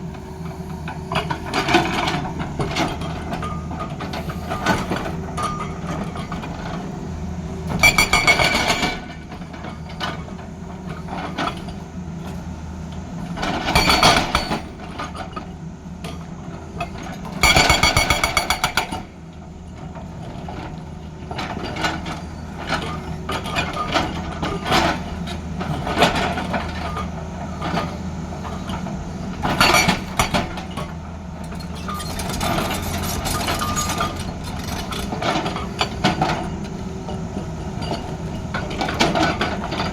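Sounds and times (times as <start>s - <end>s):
excavator diesel engine running: 0.0s - 39.9s
hydraulic breaker hammering: 17.4s - 19.1s.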